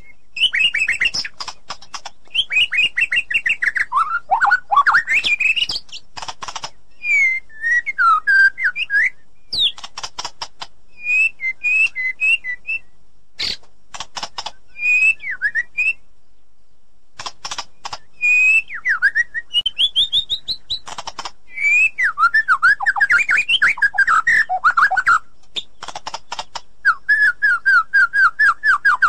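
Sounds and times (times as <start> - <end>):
songbird singing varied whistles: 0.0 - 6.1, 6.9 - 9.9, 10.9 - 13.6, 14.4 - 16.1, 17.7 - 20.9, 21.5 - 29.0
sharp bird clicking notes: 0.4 - 6.8, 9.5 - 12.0, 13.4 - 14.6, 17.2 - 18.6, 19.6 - 21.4, 22.8 - 26.7.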